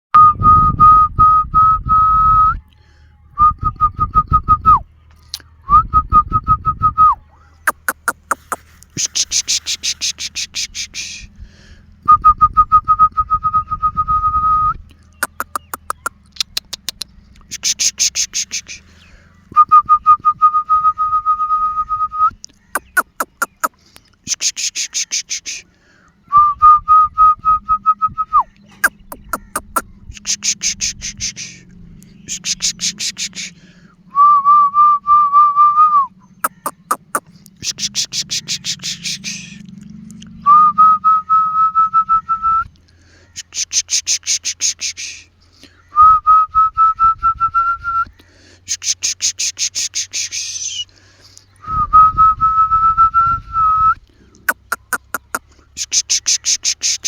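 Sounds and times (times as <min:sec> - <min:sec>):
steady whistle tone: 0:00.1 - 0:02.6, 0:12.1 - 0:15.3, 0:19.6 - 0:23.7, 0:26.3 - 0:29.6, 0:34.1 - 0:37.0, 0:40.4 - 0:42.7, 0:46.0 - 0:48.1, 0:51.6 - 0:54.0
whistle-like tone notes: 0:00.1 - 0:02.6
sharp clicks: 0:15.2 - 0:18.3, 0:22.4 - 0:24.2.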